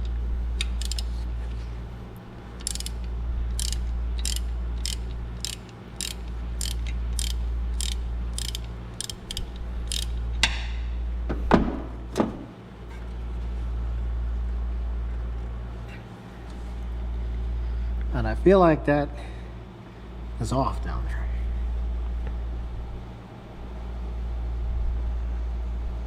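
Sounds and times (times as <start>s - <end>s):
hand ratchet clicking: 0.0s - 1.2s, 2.6s - 10.6s
steady low hum: 0.0s - 26.0s.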